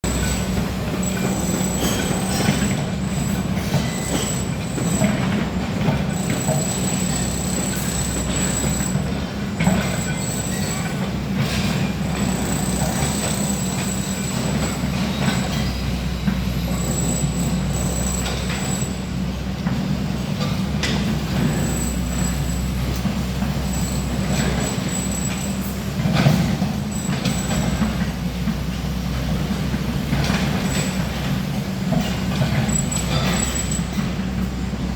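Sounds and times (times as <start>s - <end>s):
diesel engine hum: 0.0s - 13.7s.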